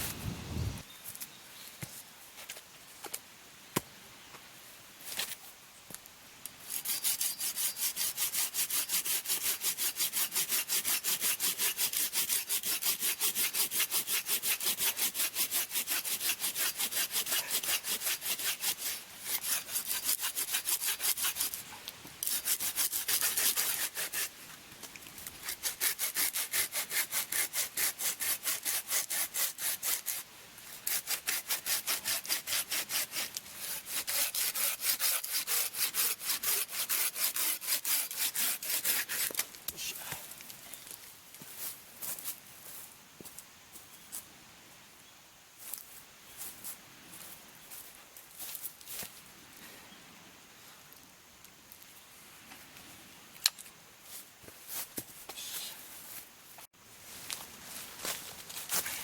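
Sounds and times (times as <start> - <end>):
hand saw cutting wood: 6.7 - 24.4, 25.4 - 39.4.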